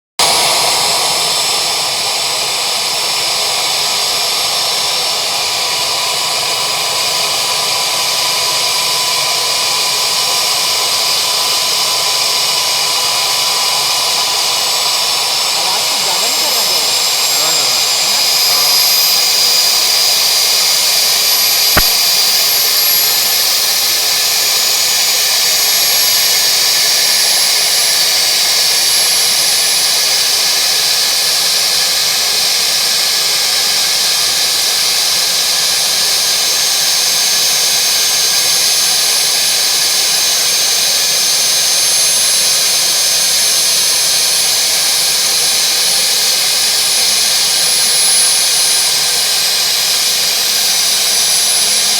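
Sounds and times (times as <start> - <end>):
helicopter engine running: 0.2 - 51.9
sharp click: 21.7 - 22.4.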